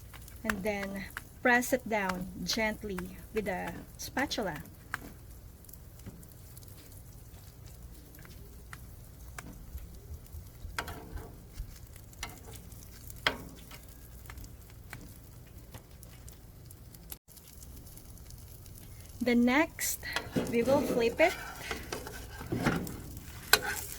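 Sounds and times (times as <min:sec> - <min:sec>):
food sizzling in a pan: 0:00.0 - 0:23.9.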